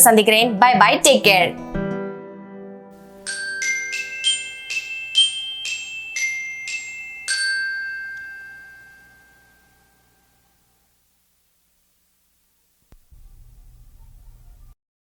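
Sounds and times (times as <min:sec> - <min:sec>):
mallet percussion jingle: 0:03.2 - 0:09.8.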